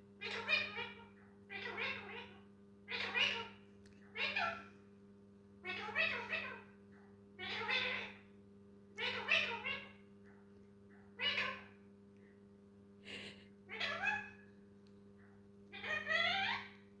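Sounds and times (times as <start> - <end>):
faint steady hum: 0.0 - 17.0
parrot mimicking cat meow: 7.4 - 8.2, 13.7 - 14.4, 15.8 - 16.7.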